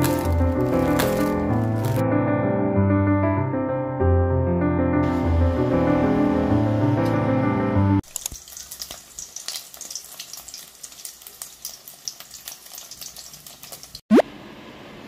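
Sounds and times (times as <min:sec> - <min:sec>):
hot dogs sizzling in oil: 0:00.0 - 0:02.0, 0:08.0 - 0:14.0
soft piano music: 0:00.0 - 0:08.0.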